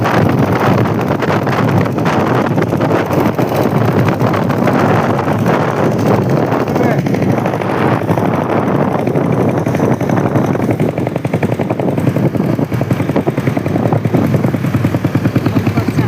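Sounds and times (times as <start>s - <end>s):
motorcycle engine exhaust beat: 0.0s - 16.0s.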